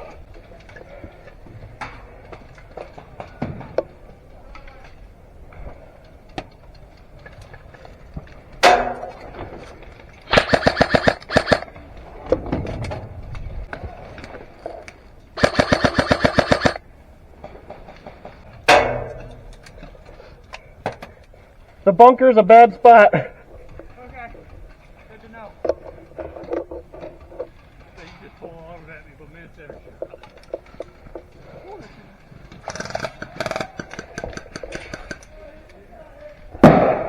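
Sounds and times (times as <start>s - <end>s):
airsoft gun full-auto bursts: 10.3s - 11.7s, 15.4s - 16.8s.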